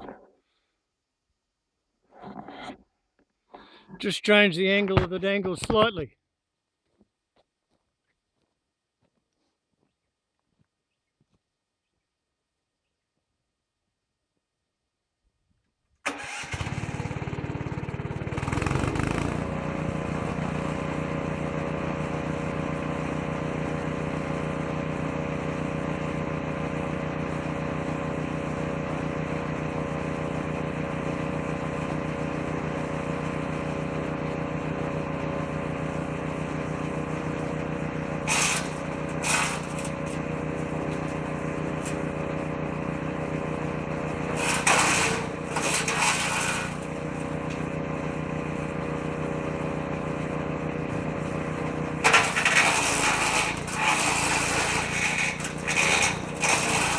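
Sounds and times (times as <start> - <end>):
shredding noise: 16.1 - 56.9
woodchipper engine running: 16.1 - 56.9.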